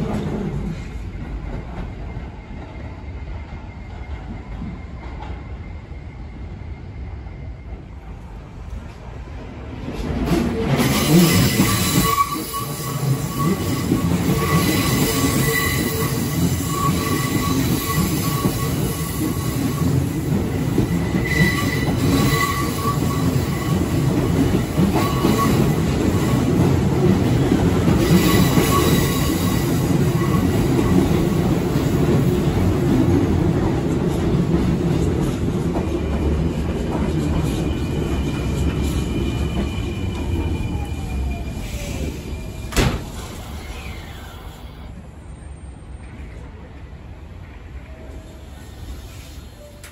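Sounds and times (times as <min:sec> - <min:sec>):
train rumbling: 0:00.0 - 0:49.9
train slowing with falling whine: 0:00.0 - 0:49.9
wheels squealing on curve: 0:10.9 - 0:19.9.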